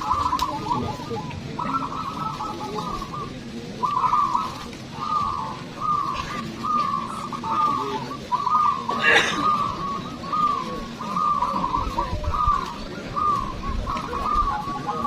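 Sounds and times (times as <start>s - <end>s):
doves cooing: 0.0s - 15.0s
low background murmur: 0.0s - 15.0s.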